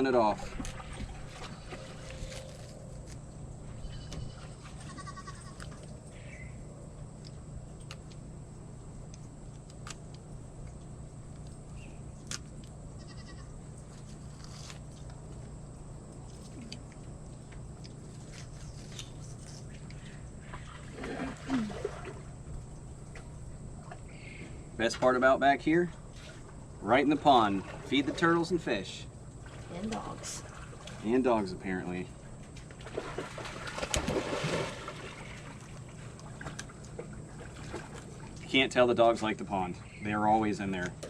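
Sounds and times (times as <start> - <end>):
steady low hum: 0.0 - 41.0
goats bleating: 3.8 - 5.7, 13.0 - 13.5.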